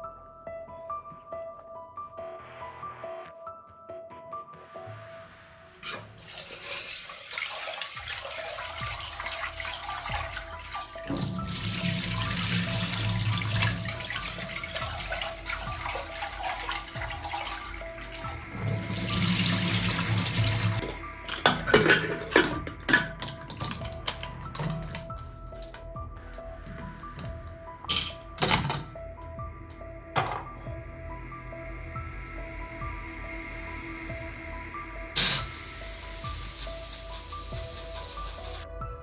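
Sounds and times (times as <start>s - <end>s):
water running from tap: 5.8s - 25.8s, 34.9s - 38.8s.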